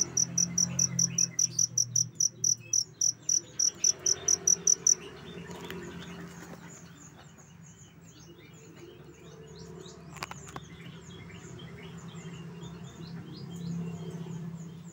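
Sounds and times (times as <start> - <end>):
high-pitched animal chirping: 0.0 - 5.0.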